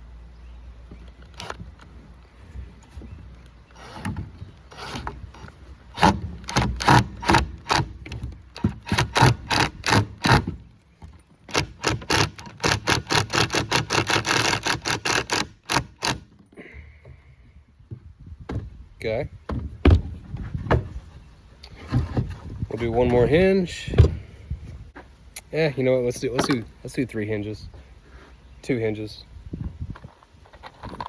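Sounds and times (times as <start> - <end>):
hand tool rasping wood: 3.7 - 10.6, 11.5 - 16.3.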